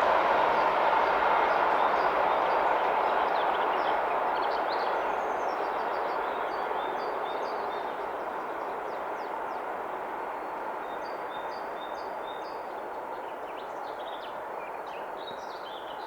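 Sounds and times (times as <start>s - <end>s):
train rolling: 0.0s - 3.2s.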